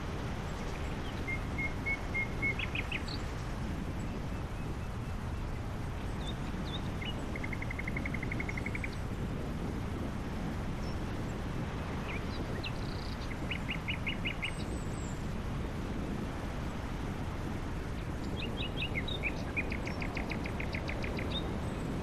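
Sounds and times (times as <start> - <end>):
birds whistling notes: 18.3 - 21.6.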